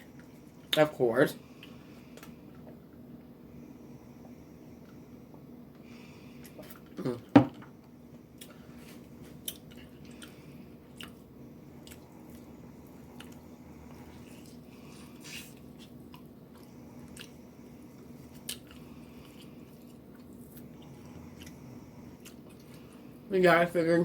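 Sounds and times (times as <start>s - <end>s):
person chewing food: 4.1s - 23.3s.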